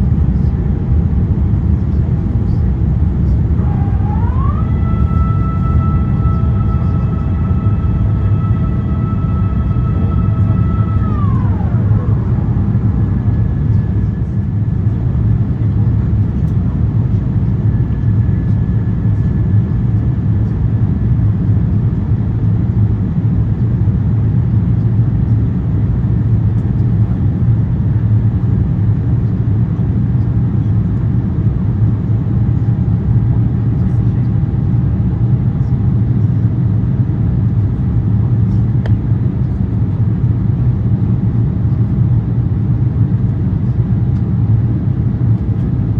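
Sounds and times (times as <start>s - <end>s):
faint whining tones: 0.0s - 21.6s
airplane cabin roar: 0.0s - 45.9s.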